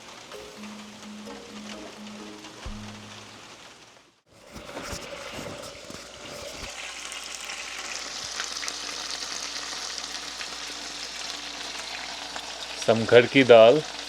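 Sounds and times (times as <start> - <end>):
food sizzling in a frying pan: 0.0 - 14.0
knocks: 2.6 - 3.2.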